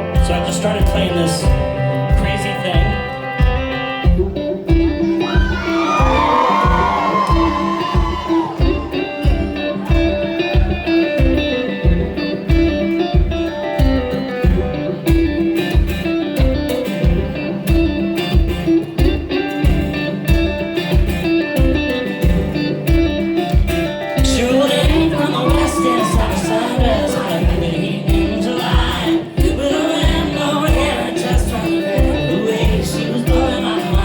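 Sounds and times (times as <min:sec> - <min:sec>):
live country-pop song: 0:00.0 - 0:34.0.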